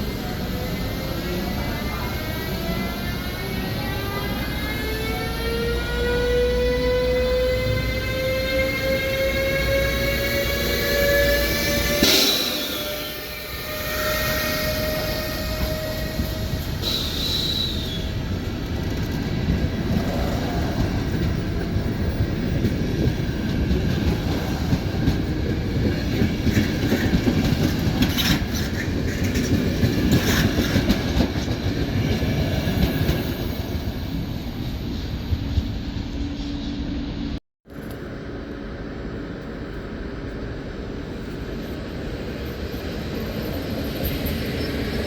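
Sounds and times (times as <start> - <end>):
train rumbling past: 0.0 - 45.0
high squeal: 10.4 - 18.2.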